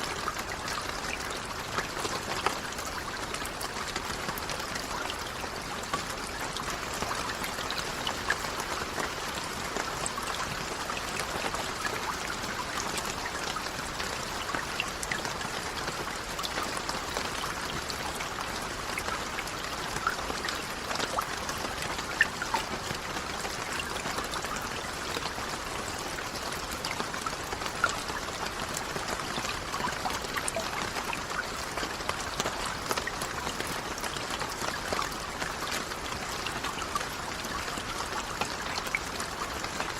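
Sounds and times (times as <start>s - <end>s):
raindrops ticking: 0.0s - 39.9s
steady rain: 0.0s - 39.9s.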